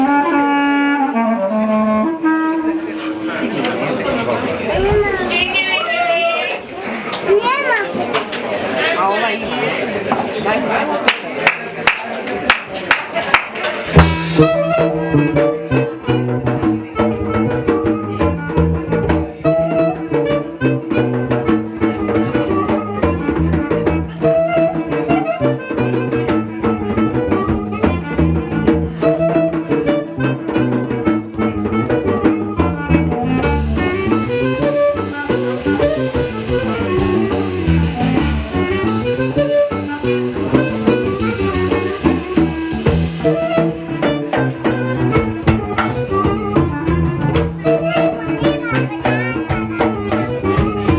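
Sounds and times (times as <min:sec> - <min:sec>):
drum kit: 0:13.7 - 0:50.9
bass line: 0:13.9 - 0:50.9
melody instrument: 0:33.2 - 0:48.4.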